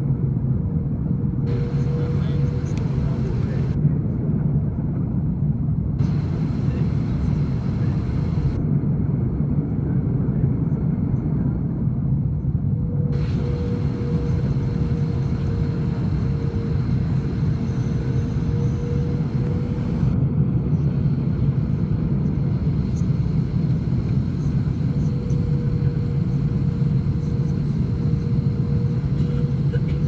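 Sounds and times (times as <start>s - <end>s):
airliner engines rumbling: 0.0s - 30.0s
faint steady hum: 1.4s - 4.0s, 5.9s - 8.8s, 12.8s - 30.0s
rushing air: 1.5s - 3.8s, 6.0s - 8.6s, 13.1s - 20.2s.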